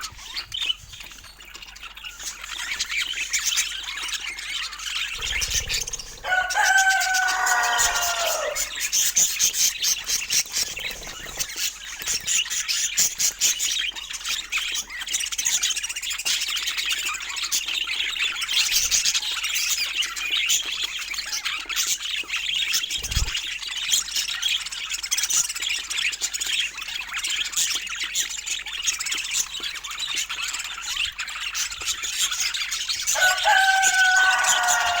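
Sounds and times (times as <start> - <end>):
budgerigars chattering: 0.0 - 23.4, 28.8 - 35.0
drawn-out descending bird call: 5.2 - 8.8, 33.2 - 35.0.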